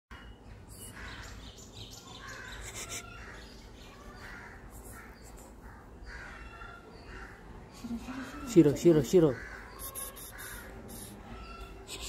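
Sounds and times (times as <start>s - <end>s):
birds calling: 0.1s - 12.0s.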